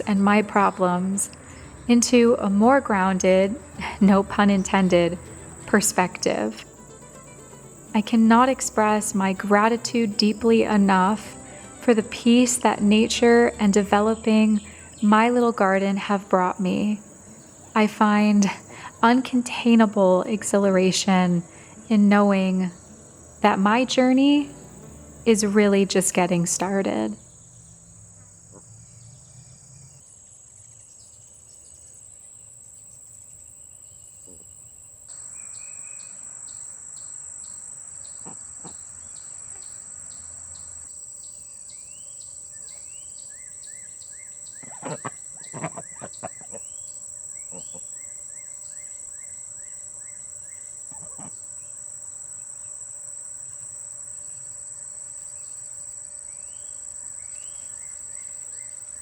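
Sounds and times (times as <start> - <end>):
insects trilling: 0.0 - 59.0
bird chirps: 35.1 - 51.6.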